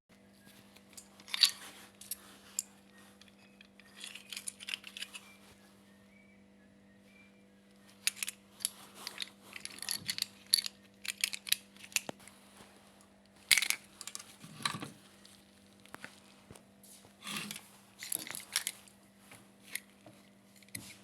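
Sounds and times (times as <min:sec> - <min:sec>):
faint steady hum: 0:00.1 - 0:21.0
clicks and metallic clinks of tools: 0:00.8 - 0:05.4, 0:08.0 - 0:12.3, 0:13.5 - 0:14.9, 0:17.2 - 0:18.9.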